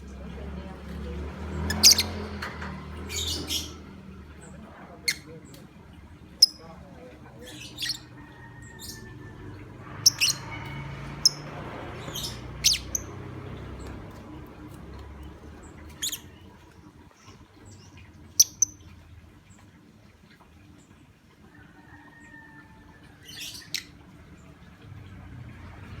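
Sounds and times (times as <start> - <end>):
bird chirping and squawking: 1.6 - 4.1, 7.4 - 13.8, 15.6 - 18.9, 23.2 - 24.0.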